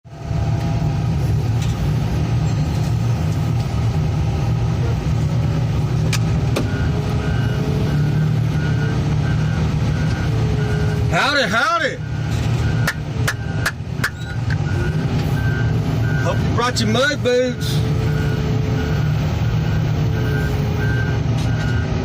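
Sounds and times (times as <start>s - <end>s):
heavy engine rumbling: 0.0s - 22.0s.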